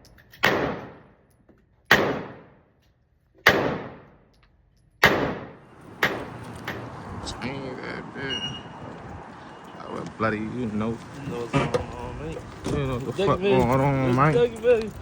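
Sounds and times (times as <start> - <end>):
gunshots with echo: 0.4 - 1.1, 1.9 - 2.6, 3.5 - 4.1, 5.0 - 6.3.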